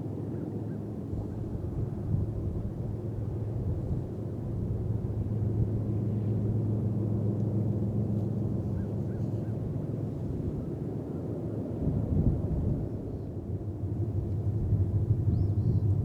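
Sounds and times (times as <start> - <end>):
distant diesel locomotive drone: 2.6 - 11.7.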